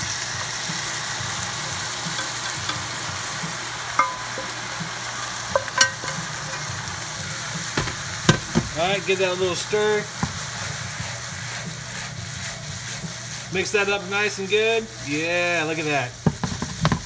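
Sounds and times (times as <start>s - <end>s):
potatoes sizzling in a frying pan: 0.0s - 17.0s
metal clinks against pan: 4.0s - 4.8s, 5.5s - 6.8s.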